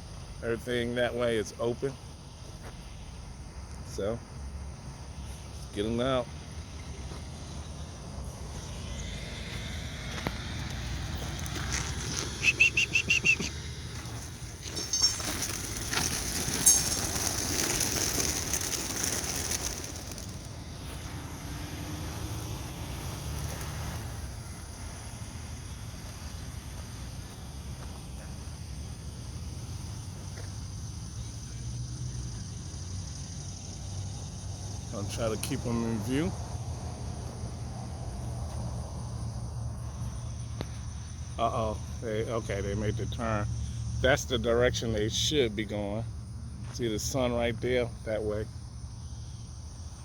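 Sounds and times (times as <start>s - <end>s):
low outdoor background: 0.0s - 50.0s
pigeon wings flapping: 14.2s - 20.6s.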